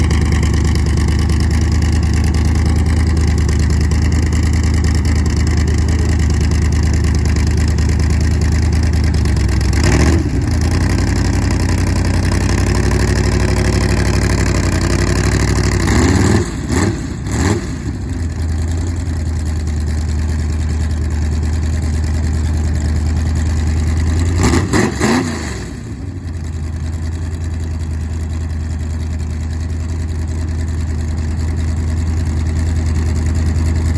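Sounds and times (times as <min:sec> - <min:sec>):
car engines idling and revving: 0:00.0 - 0:33.9.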